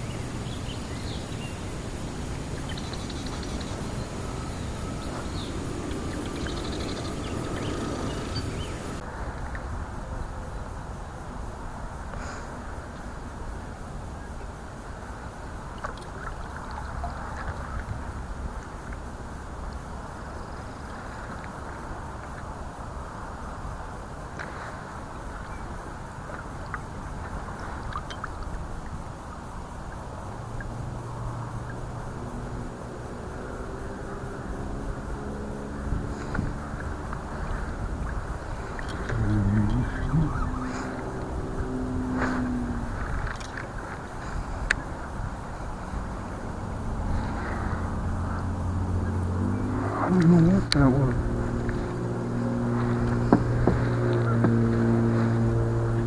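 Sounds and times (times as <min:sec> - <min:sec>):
faint calls: 0:00.0 - 0:09.0, 0:33.1 - 0:56.0
water: 0:00.0 - 0:56.0
wind: 0:00.0 - 0:56.0.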